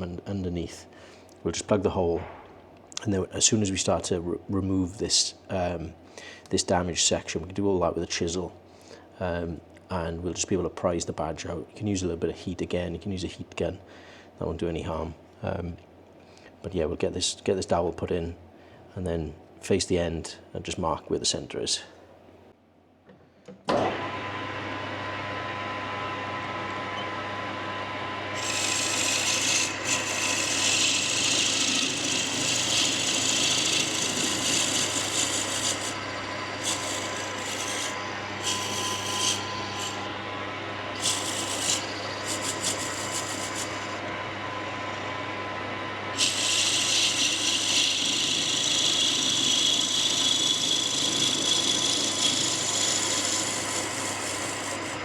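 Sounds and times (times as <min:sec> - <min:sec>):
lathe motor humming: 0:23.9 - 0:55.0
tool scraping spinning wood: 0:28.3 - 0:55.0.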